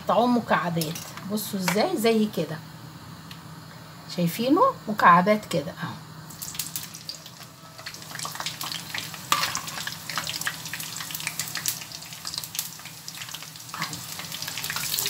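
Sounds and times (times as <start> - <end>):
deep-frying oil sizzling and popping: 6.3 - 15.0.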